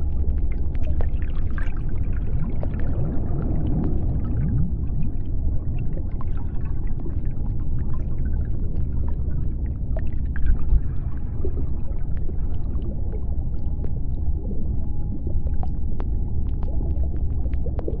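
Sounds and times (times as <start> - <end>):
deep underwater rumble: 0.0 - 18.0
clicks and crackles: 13.5 - 18.0.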